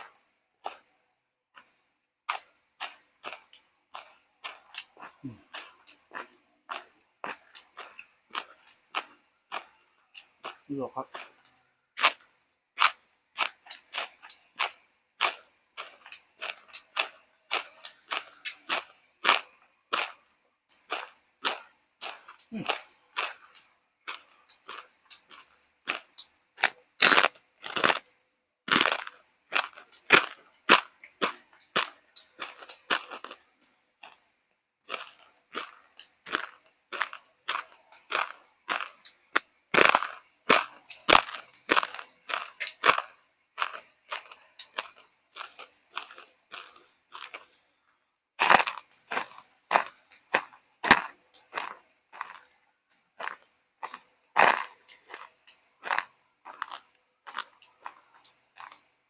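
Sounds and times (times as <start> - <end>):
person chewing crunchy food: 0.0 - 59.0.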